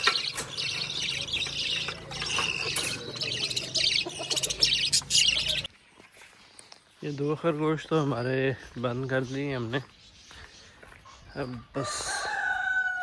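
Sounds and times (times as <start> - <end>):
parrots chirping and chattering: 0.0 - 5.7.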